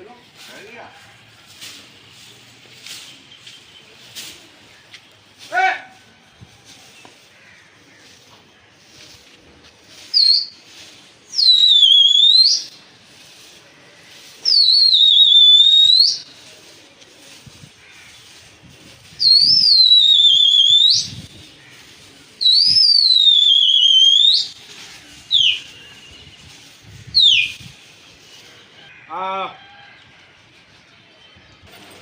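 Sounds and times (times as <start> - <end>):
person whistling loudly: 22.4 - 24.5.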